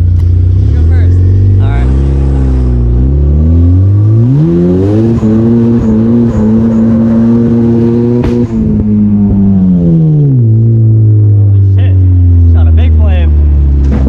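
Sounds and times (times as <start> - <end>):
car engine revving: 0.0 - 14.0
sharp engine pop: 8.1 - 8.8.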